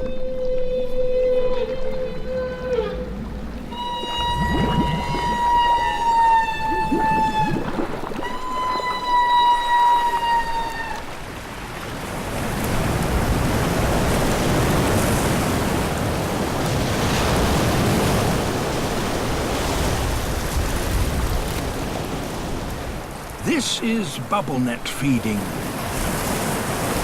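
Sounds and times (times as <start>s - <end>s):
whale call high falling tone: 0.0s - 11.3s.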